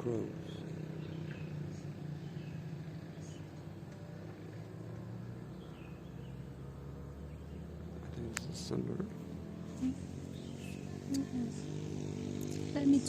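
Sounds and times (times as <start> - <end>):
vehicle engine humming: 0.0 - 13.0
faint high bird chirps: 0.4 - 3.8.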